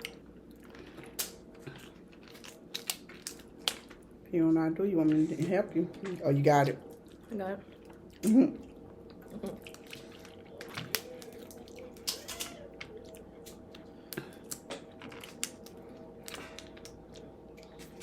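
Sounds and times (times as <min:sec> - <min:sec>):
crab shells cracking: 0:01.1 - 0:04.1, 0:10.6 - 0:17.3.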